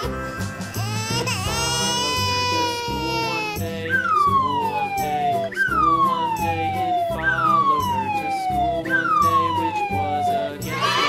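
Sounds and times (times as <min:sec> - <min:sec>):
background music with steady beat: 0:00.0 - 0:11.0
siren-like electronic tone: 0:04.2 - 0:10.6.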